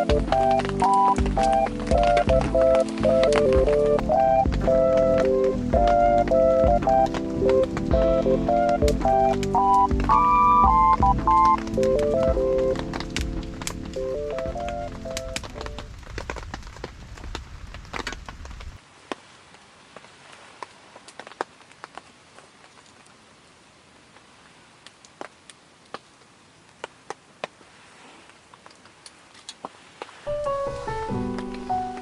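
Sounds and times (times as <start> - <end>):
piano music: 0.0 - 15.9, 30.3 - 32.0
raindrops tapping: 0.0 - 23.2, 24.1 - 27.7, 28.5 - 32.0
soft steady hiss: 0.0 - 32.0
low rumbling: 0.1 - 18.8.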